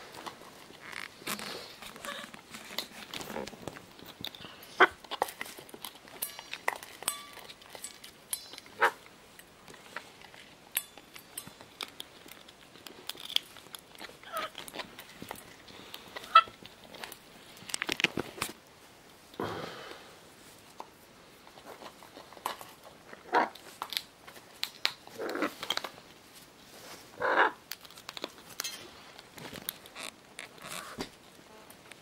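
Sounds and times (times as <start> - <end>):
parrots chewing and crunching: 0.0 - 19.4, 20.3 - 32.0
parrot calls: 4.4 - 5.0, 8.7 - 9.0, 14.2 - 14.6, 16.2 - 16.5, 27.2 - 27.6.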